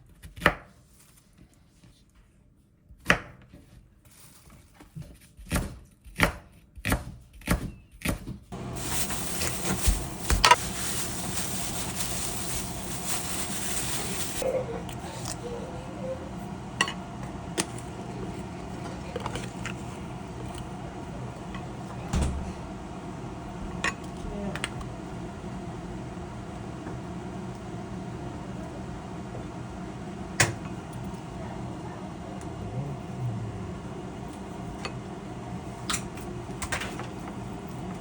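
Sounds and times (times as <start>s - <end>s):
knife chopping on cutting board: 5.5s - 8.3s.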